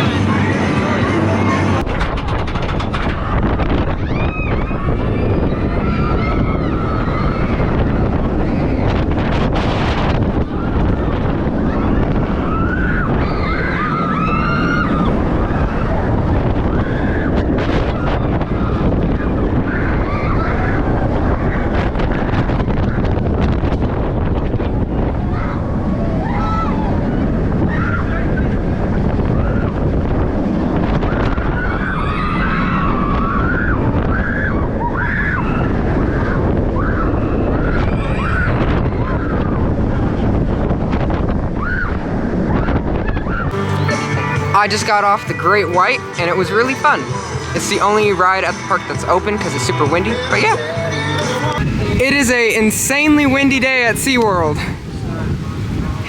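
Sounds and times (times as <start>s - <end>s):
strong wind buffeting microphone: 0.0s - 56.0s
high-pitched voices shouting: 49.8s - 52.0s.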